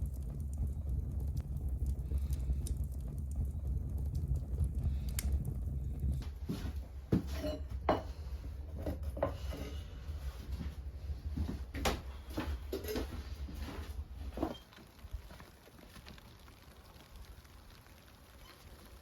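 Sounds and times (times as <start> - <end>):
steady low rumble: 0.0 - 18.3
sharp knocks and clatters: 6.3 - 9.8.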